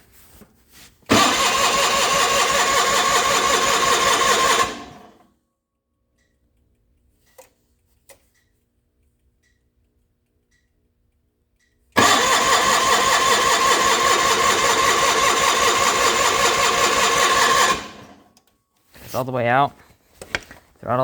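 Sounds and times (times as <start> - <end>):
engine cranked by starter: 1.1 - 5.2, 12.0 - 18.3.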